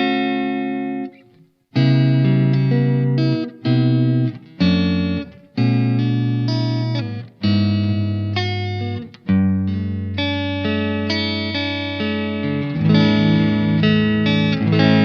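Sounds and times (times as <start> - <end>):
electric guitar strumming chords: 0.0 - 15.0.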